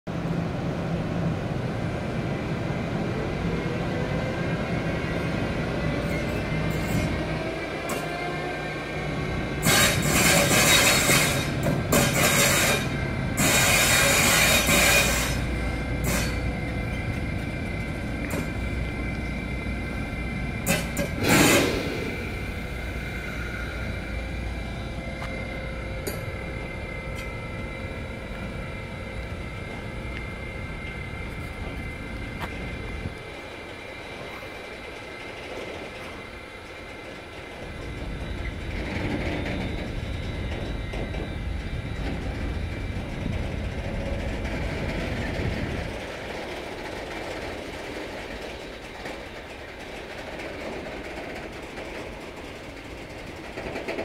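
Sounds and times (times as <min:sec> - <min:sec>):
train wagons rolling: 0:05.1 - 0:54.0
wheel squeal: 0:09.6 - 0:17.0
rushes of noise: 0:17.5 - 0:25.8.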